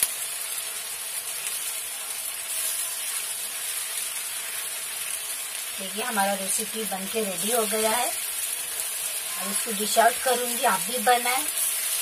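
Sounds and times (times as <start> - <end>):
food sizzling in a frying pan: 0.0 - 12.0
spatula scraping a pan: 11.4 - 12.0.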